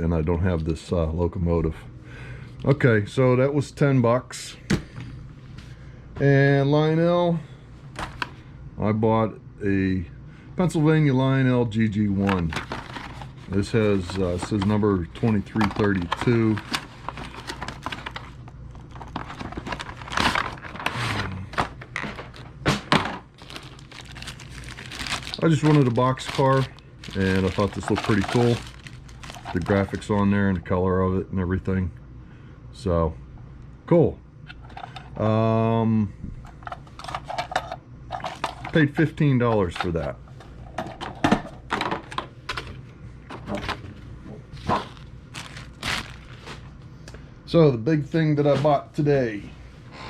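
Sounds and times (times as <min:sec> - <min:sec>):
cardboard rustling and scraping: 0:12.2 - 0:22.5, 0:23.4 - 0:30.2, 0:43.4 - 0:46.7.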